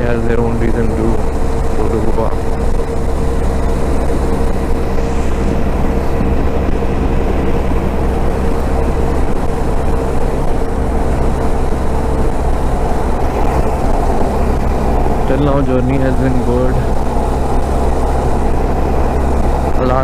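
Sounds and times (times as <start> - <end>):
motorcycle engine cruising: 0.0 - 20.0
wind rumble on microphone: 0.0 - 20.0.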